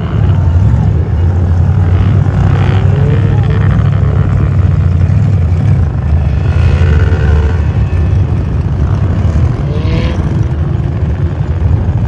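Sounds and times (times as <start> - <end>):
car engines rumbling: 0.0 - 12.0.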